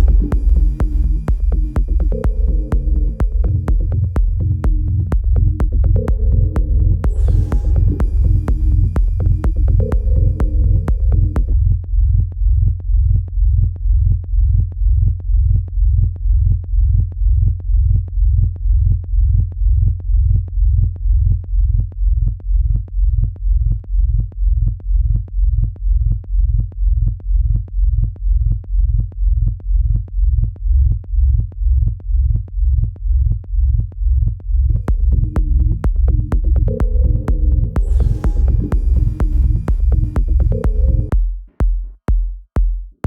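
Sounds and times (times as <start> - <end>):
electronic kick drum beat: 0.0 - 43.0.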